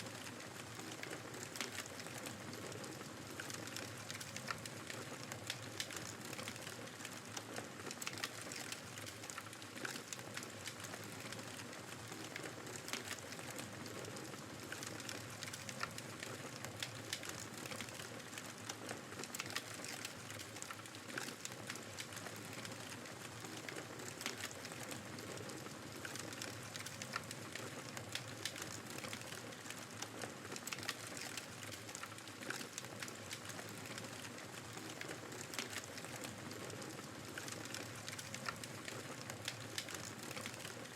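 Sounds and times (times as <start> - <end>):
fireplace crackling: 0.0 - 40.9.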